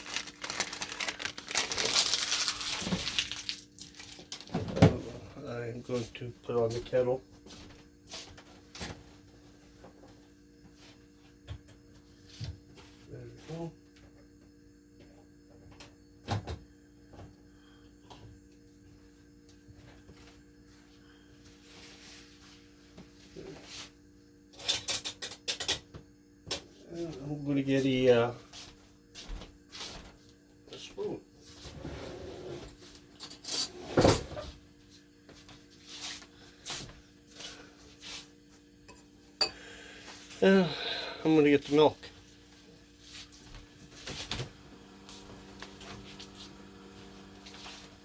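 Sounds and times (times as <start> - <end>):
rustling: 0.0 - 4.2
faint steady hum: 0.0 - 48.0.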